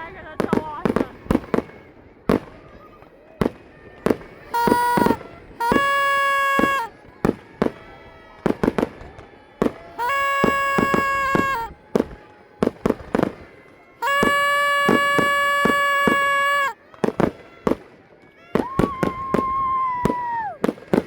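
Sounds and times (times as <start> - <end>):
fireworks bangs: 3.4 - 17.8
train horn blasts: 4.5 - 6.9, 10.0 - 11.7, 14.0 - 16.8.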